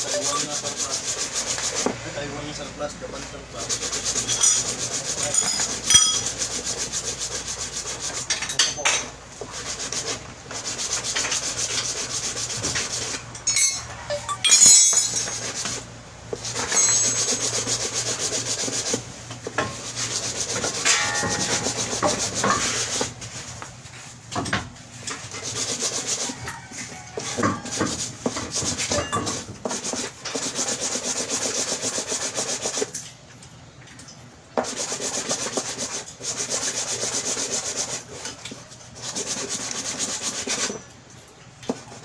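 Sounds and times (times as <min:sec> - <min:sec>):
hand scraping on workpiece: 0:00.0 - 0:02.0, 0:03.6 - 0:08.8, 0:09.4 - 0:23.5, 0:25.2 - 0:32.9.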